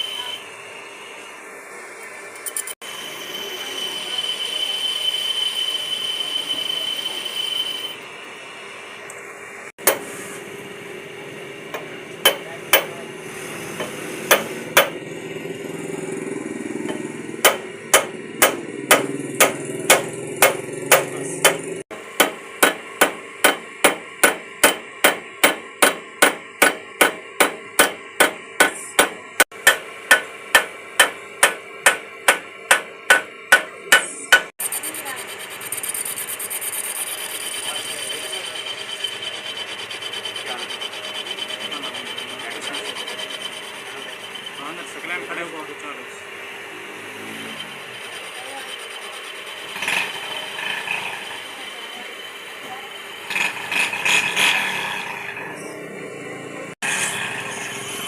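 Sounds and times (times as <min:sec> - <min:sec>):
hand hammer striking: 0:11.7 - 0:12.9, 0:13.8 - 0:15.0, 0:16.9 - 0:34.5.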